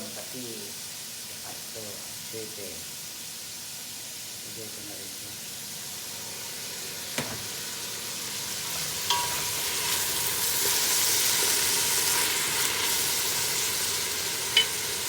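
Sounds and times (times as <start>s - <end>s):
chicken sizzling in a pot: 0.0s - 15.0s
utensil clinking against pot: 9.1s - 9.6s, 14.6s - 15.0s.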